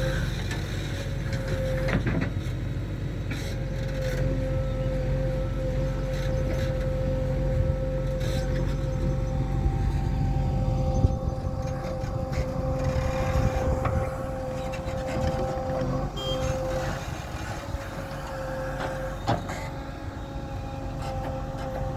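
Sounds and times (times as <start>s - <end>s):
diesel machinery engine rumble: 0.0s - 21.9s
high whine: 7.4s - 18.6s.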